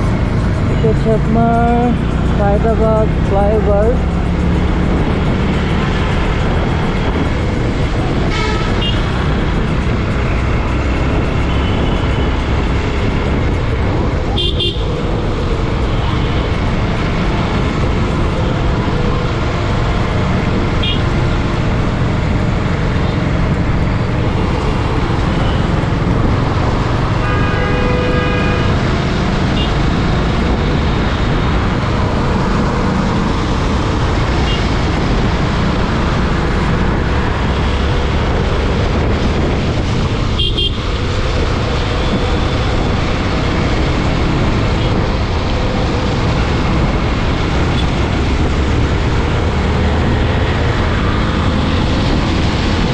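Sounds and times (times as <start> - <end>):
traffic noise: 0.0 - 52.9
vehicle horns tooting: 8.3 - 9.1, 14.3 - 14.9, 20.8 - 21.1, 27.2 - 28.8, 29.5 - 29.8, 40.3 - 40.9.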